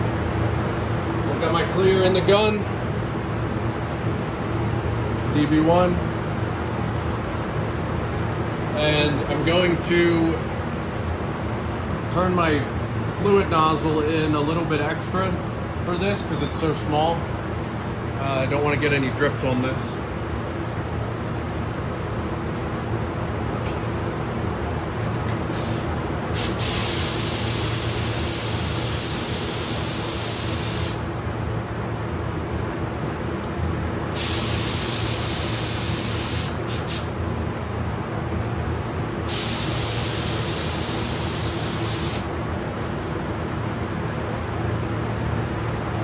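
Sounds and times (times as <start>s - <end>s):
spray gun hissing: 25.4s - 31.0s, 34.2s - 37.1s, 39.3s - 42.3s.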